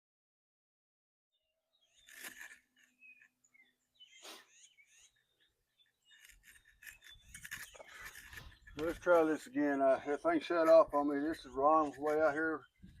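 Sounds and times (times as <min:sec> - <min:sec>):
faint birds chirping: 0:01.3 - 0:13.0
clicks and rustles: 0:02.0 - 0:03.4, 0:06.1 - 0:09.7.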